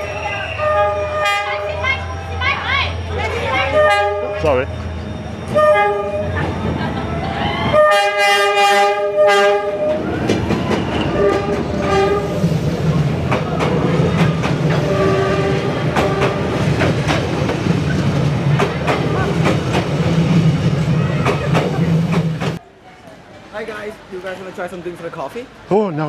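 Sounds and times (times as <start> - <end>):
train horn: 0.0 - 6.4, 7.7 - 10.1, 11.1 - 12.6, 14.7 - 16.7
train rumbling past: 0.0 - 25.7
wheels clattering on rails: 1.4 - 22.6.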